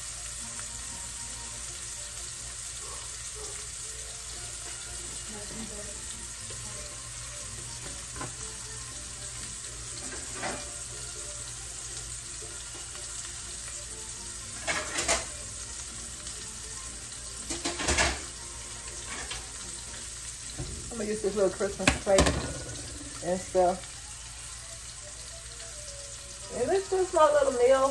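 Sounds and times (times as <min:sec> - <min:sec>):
meat sizzling in a pan: 0:00.0 - 0:27.9
clatters against pan: 0:10.0 - 0:10.7, 0:14.6 - 0:15.4, 0:17.4 - 0:18.4, 0:19.0 - 0:19.6.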